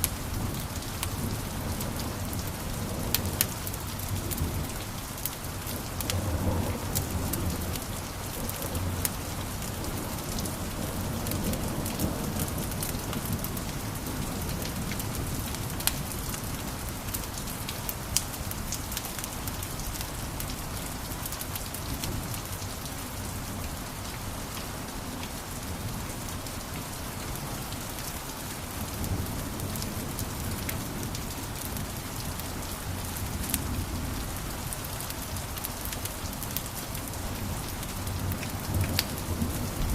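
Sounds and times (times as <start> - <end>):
wood fire crackling: 3.4 - 19.3.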